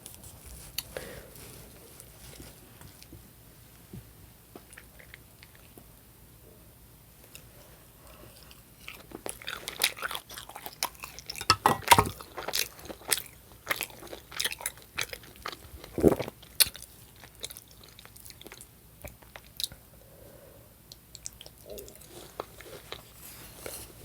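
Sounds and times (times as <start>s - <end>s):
chewing and biting food: 8.3s - 19.9s.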